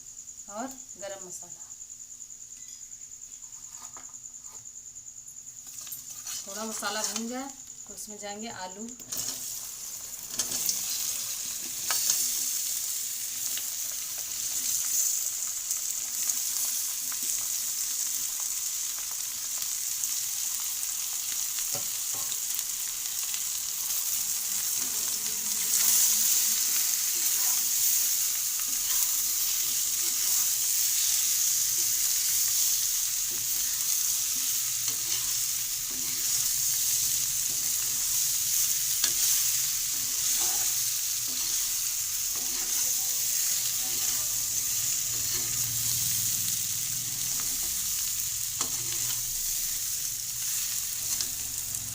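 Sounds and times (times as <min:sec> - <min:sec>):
potatoes sizzling in oil: 0:00.0 - 0:51.9
utensil scraping a pan: 0:05.8 - 0:07.2, 0:24.6 - 0:45.8, 0:48.6 - 0:49.7.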